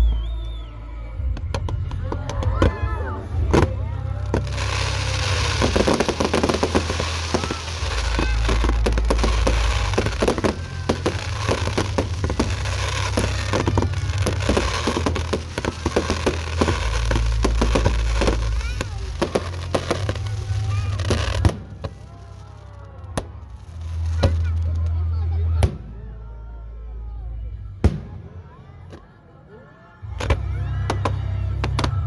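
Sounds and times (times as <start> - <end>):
low rumble: 0.0 - 28.5
fireworks crackle: 3.3 - 25.2
fireworks bangs: 3.4 - 22.5.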